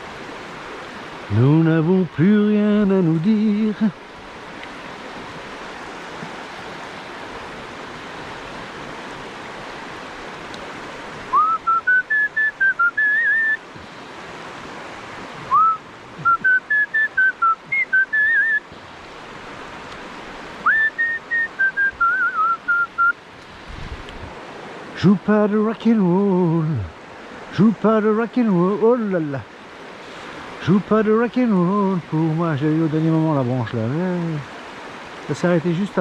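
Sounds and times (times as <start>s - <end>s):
river rushing: 0.0s - 36.0s
man whistling a tune: 11.3s - 13.6s, 15.5s - 18.6s, 20.6s - 23.2s.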